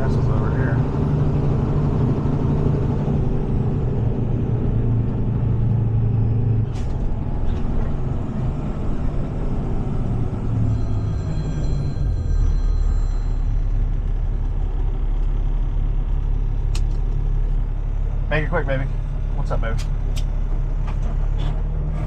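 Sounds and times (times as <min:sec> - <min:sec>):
diesel truck engine droning: 0:00.0 - 0:22.0.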